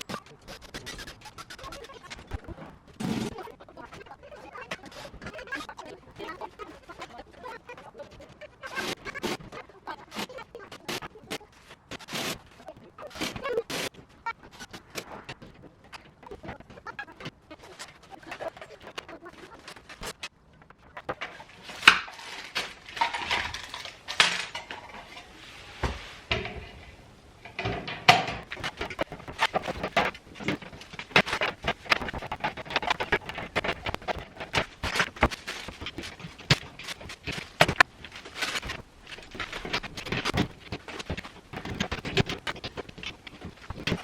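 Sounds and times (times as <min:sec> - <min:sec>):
hard objects clinking and clattering: 0:08.0 - 0:44.0.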